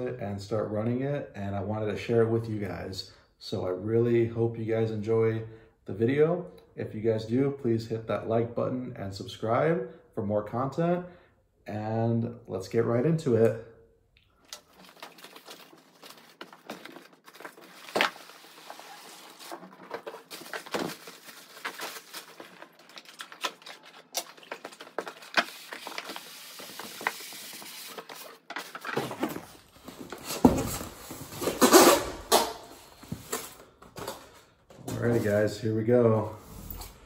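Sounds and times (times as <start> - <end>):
packaging being opened: 14.4 - 34.2.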